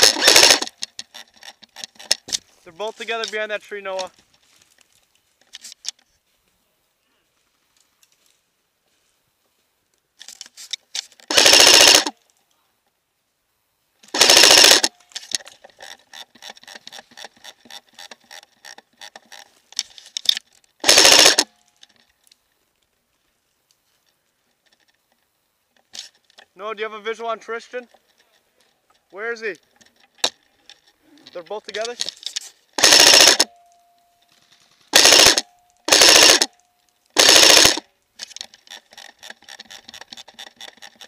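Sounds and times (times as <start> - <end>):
airsoft gun full-auto bursts: 0.0 - 0.7, 11.3 - 12.1, 14.1 - 14.9, 20.8 - 21.5, 32.8 - 33.5, 34.9 - 36.5, 37.2 - 37.8
sharp clicks: 0.0 - 2.4, 10.2 - 12.1, 14.0 - 22.4, 27.9 - 33.8, 34.9 - 41.0.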